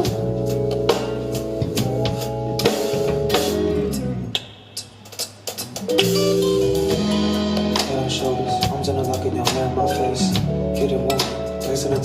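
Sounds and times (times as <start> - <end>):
drum kit: 0.0 - 12.0
guitar chords: 5.7 - 12.0.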